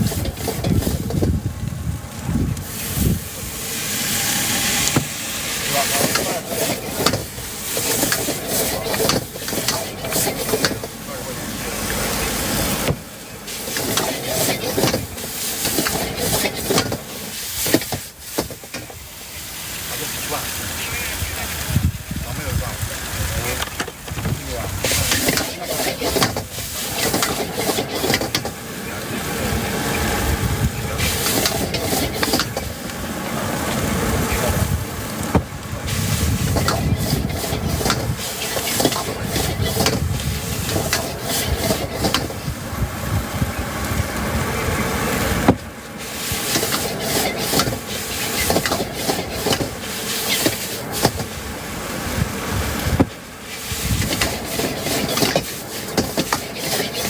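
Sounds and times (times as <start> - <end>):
food sizzling in a wok: 0.0 - 57.0
gas burner rushing: 0.0 - 57.0
metal spatula scraping a wok: 5.8 - 11.0, 13.5 - 18.8, 24.9 - 28.6, 31.0 - 32.7, 35.9 - 42.5, 46.0 - 51.4, 53.5 - 57.0.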